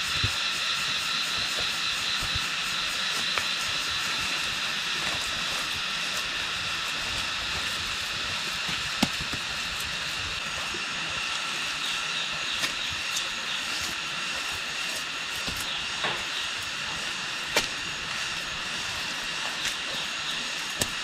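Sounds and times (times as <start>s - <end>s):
steady high hiss: 0.0s - 21.0s.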